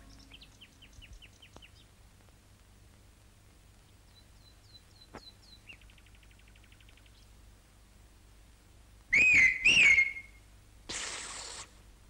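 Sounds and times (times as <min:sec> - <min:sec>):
faint bird chirping: 0:00.0 - 0:02.0, 0:03.8 - 0:07.4.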